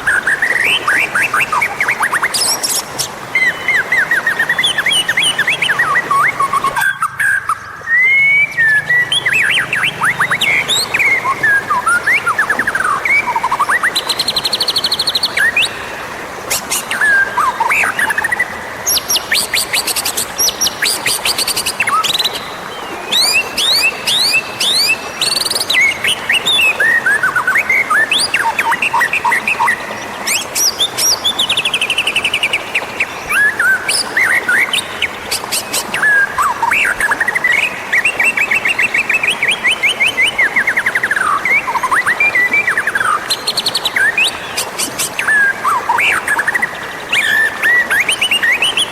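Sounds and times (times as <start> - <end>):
songbird whistling and trilling: 0.1 - 15.8, 16.7 - 48.9.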